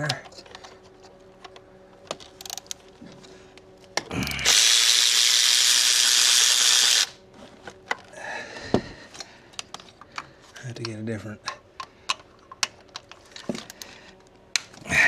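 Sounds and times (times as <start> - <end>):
power tool running on bolt: 4.4 - 7.2.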